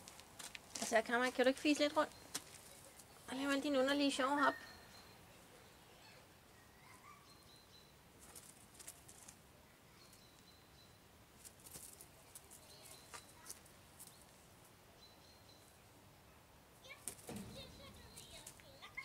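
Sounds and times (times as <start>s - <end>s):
faint bird chirps: 4.4s - 8.5s, 9.7s - 11.1s, 12.2s - 14.3s
soft scratches and rustles: 8.2s - 9.4s, 11.4s - 14.4s.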